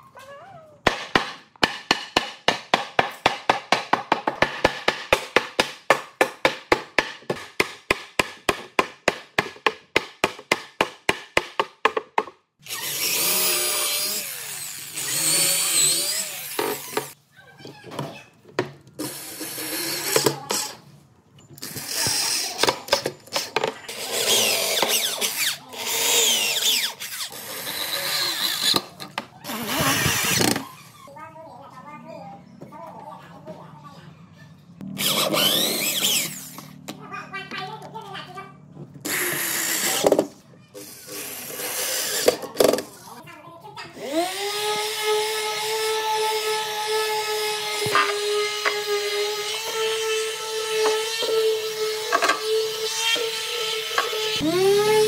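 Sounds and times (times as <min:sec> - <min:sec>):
power tool working wood: 0:12.6 - 0:17.2, 0:23.9 - 0:30.6, 0:34.8 - 0:36.8, 0:39.0 - 0:42.8, 0:44.0 - 0:55.0.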